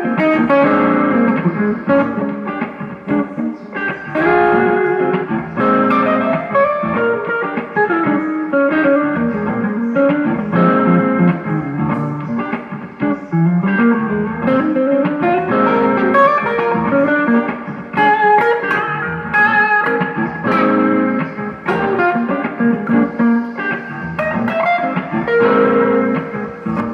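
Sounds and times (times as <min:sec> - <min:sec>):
guitar playing notes and chords: 0:00.0 - 0:26.9.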